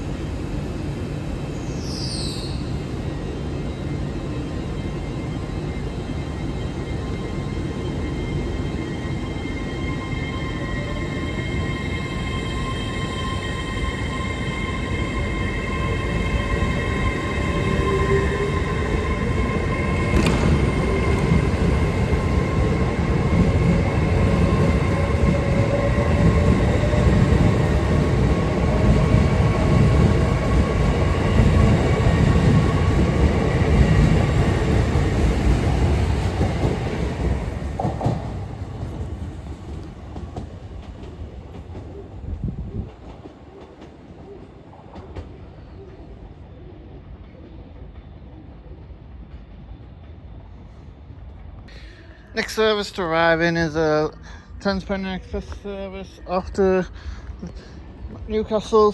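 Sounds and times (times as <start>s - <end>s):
train traction whine: 2.5s - 41.0s
train wheels rumbling: 2.6s - 45.6s.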